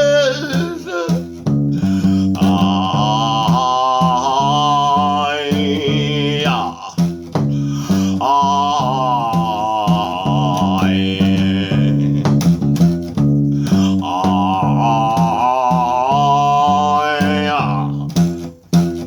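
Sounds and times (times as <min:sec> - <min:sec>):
wordless vocal gliding: 0:00.0 - 0:01.2, 0:01.8 - 0:12.4, 0:13.6 - 0:18.2
acoustic guitar riff: 0:00.0 - 0:19.0.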